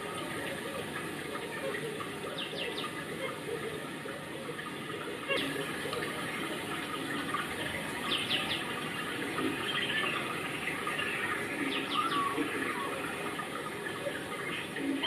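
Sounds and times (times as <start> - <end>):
steady background hiss: 0.0 - 15.0
small birds chirping: 1.6 - 3.6, 5.2 - 15.0
falling bird calls: 5.2 - 15.0.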